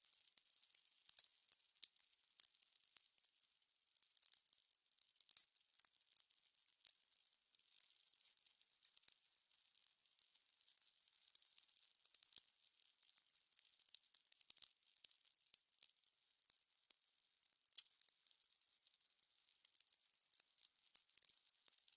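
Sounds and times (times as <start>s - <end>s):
fire crackling: 10.7s - 12.2s.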